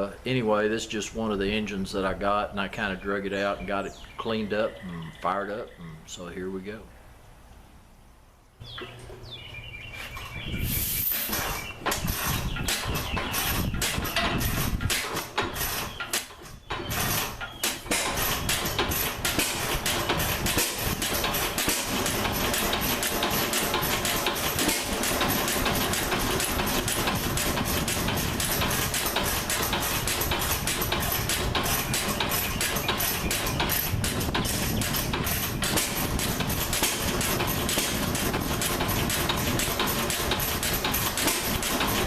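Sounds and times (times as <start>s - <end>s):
stationary engine running: 17.8s - 42.0s.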